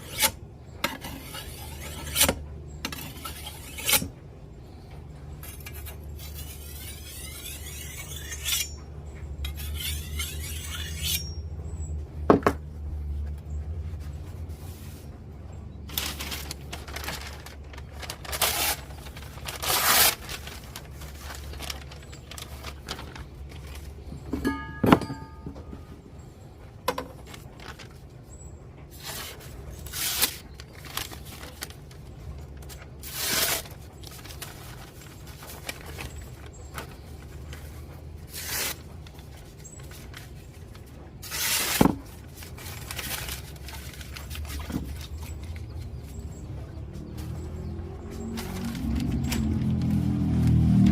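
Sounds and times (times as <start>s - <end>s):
sharpening stone scraping steel blade: 0.0s - 2.4s, 3.0s - 4.1s, 5.5s - 8.8s, 9.5s - 11.4s
steady low hum: 0.0s - 50.9s.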